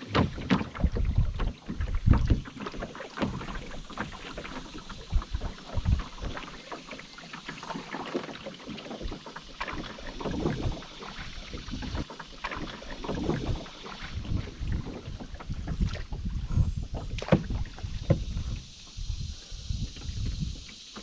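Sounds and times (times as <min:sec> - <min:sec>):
sharp knocks on canoe: 0:00.0 - 0:04.3, 0:17.1 - 0:18.4
paddle strokes splashing in water: 0:00.0 - 0:21.0.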